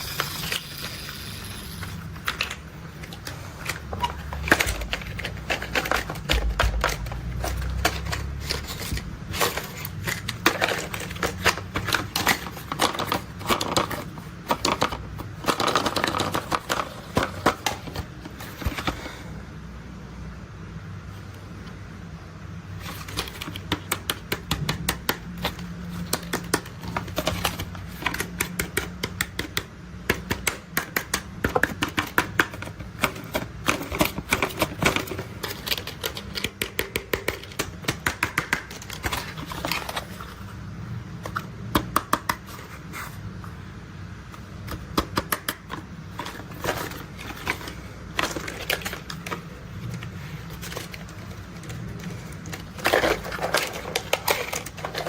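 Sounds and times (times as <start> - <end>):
tapping and clicking on toys: 22.9 - 40.0, 41.2 - 42.6, 44.6 - 49.4.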